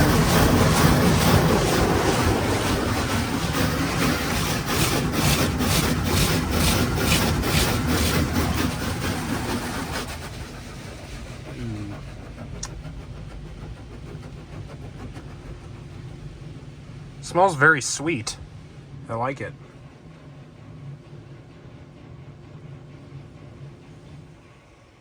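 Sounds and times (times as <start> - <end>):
water spray drumming on car: 0.0 - 18.2.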